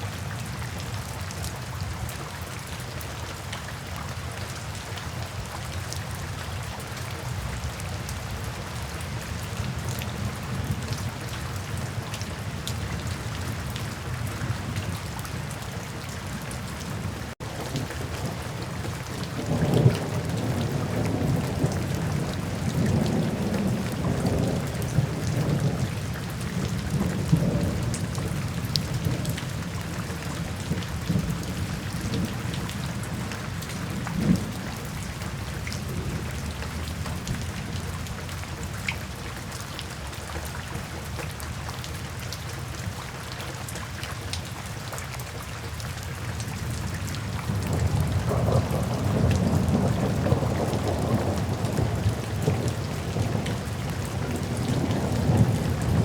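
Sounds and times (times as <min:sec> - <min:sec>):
steady rain: 0:00.0 - 0:56.0
soft rolling thunder: 0:17.0 - 0:38.3, 0:46.6 - 0:56.0.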